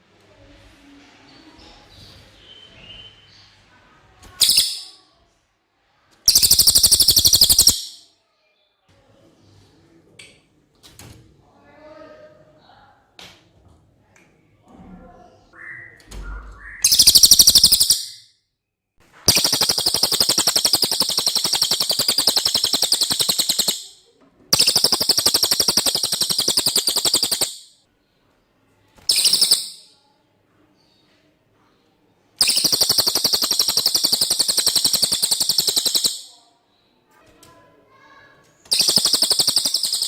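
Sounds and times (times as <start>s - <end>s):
songbird rapid high trills: 6.3s - 8.0s, 16.8s - 18.1s, 19.3s - 24.0s, 24.6s - 27.7s, 29.1s - 29.8s, 32.4s - 36.3s, 38.7s - 40.0s.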